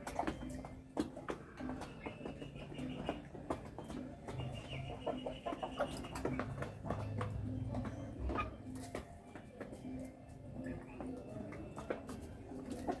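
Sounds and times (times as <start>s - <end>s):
chickens clucking: 0.0s - 13.0s
high-pitched chicken calls: 1.2s - 6.7s.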